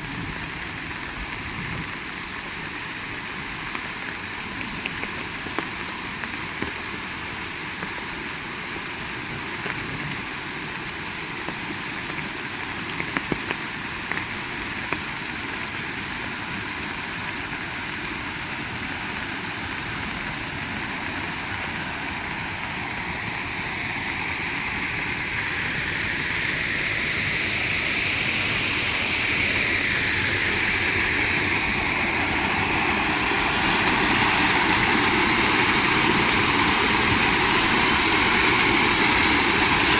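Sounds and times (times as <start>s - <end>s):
heavy rain falling: 0.0s - 39.9s
sharp taps of raindrops: 3.7s - 7.0s, 9.6s - 10.4s, 11.4s - 15.2s.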